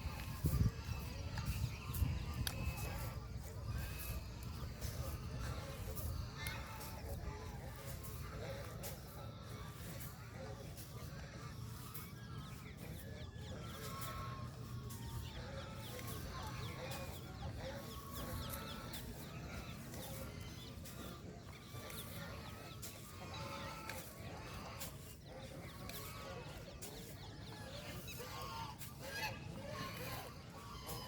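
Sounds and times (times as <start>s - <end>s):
chickens clucking: 0.0s - 31.0s.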